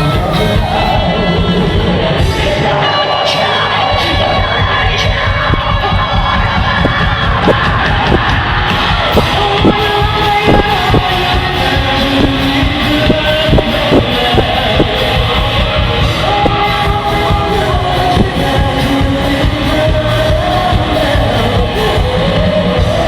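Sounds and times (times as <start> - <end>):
crowd yelling: 0.0 - 23.0
live rock band playing: 0.0 - 23.0
person singing: 0.0 - 23.0.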